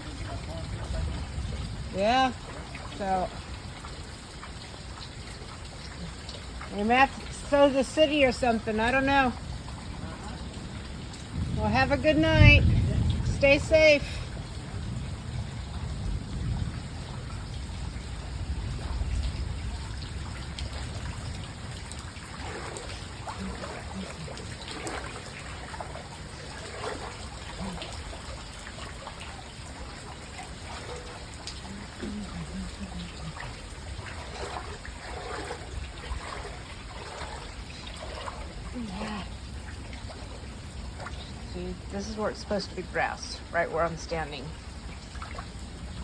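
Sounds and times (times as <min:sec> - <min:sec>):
floodwater running: 0:00.0 - 0:46.0
low rumble: 0:09.4 - 0:28.5.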